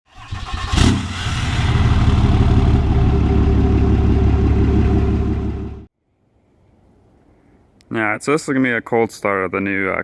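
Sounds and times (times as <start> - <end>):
loud engine burst: 0.1 - 5.9
diesel engine running: 0.2 - 5.9.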